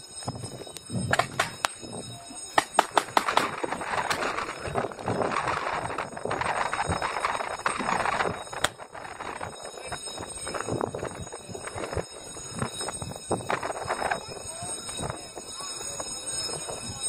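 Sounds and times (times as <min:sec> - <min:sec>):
paintball pistols firing: 0:01.1 - 0:01.8, 0:02.6 - 0:04.4.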